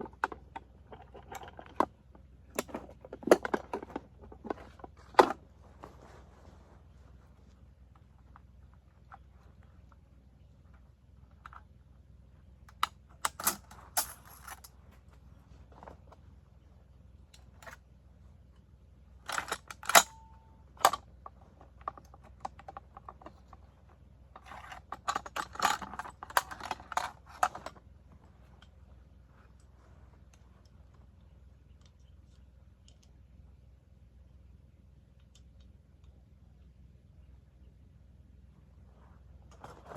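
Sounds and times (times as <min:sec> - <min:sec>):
metal gun parts clicking and rattling: 0:00.0 - 0:05.4, 0:12.7 - 0:14.8, 0:19.3 - 0:23.7, 0:24.4 - 0:27.8.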